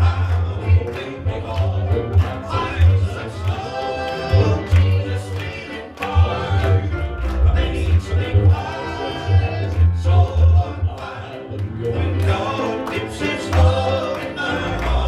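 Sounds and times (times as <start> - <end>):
gospel quartet and band: 0.0 - 15.0
pulsing bass line: 6.2 - 12.4.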